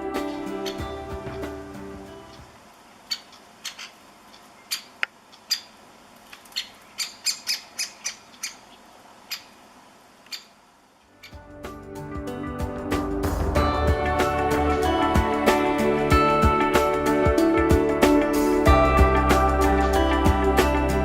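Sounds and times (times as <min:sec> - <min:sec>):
woodpecker sharp kik calls: 0:00.5 - 0:00.9, 0:03.1 - 0:05.8, 0:06.4 - 0:09.6, 0:10.3 - 0:10.6.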